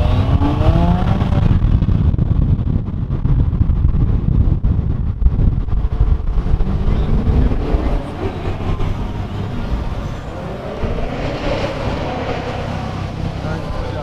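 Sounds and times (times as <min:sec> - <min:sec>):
car engine revving: 0:00.0 - 0:01.7, 0:05.4 - 0:14.0.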